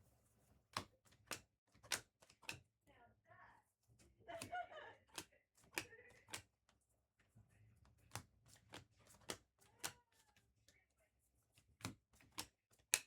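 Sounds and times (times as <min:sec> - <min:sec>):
trading cards snapping: 0:00.7 - 0:02.6, 0:04.4 - 0:06.5, 0:08.1 - 0:10.3, 0:11.7 - 0:13.0.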